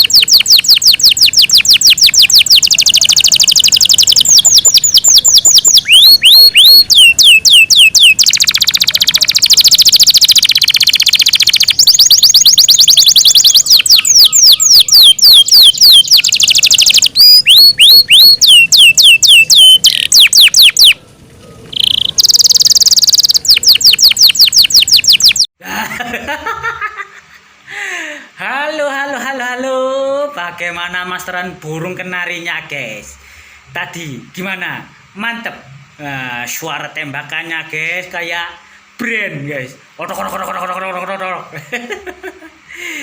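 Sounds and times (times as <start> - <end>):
canary singing trills: 0.0 - 25.5.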